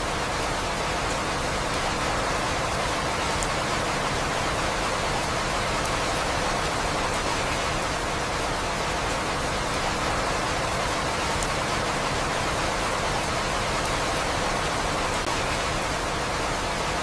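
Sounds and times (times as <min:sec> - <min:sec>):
steady rain hiss: 0:00.0 - 0:17.0
faint raindrop ticks: 0:02.7 - 0:03.9, 0:11.2 - 0:11.7.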